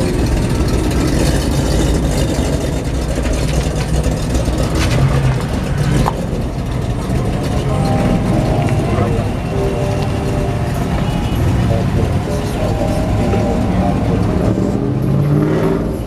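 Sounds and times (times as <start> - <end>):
truck engine rumbling: 0.0 - 16.0.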